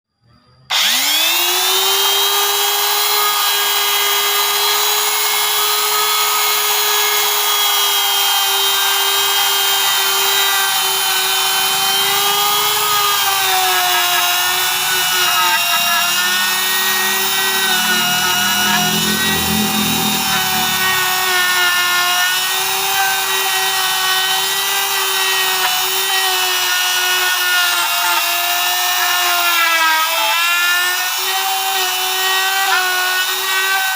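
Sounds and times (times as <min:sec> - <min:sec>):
boring machine motor whining: 0:00.7 - 0:33.9
low rumble: 0:16.2 - 0:23.3.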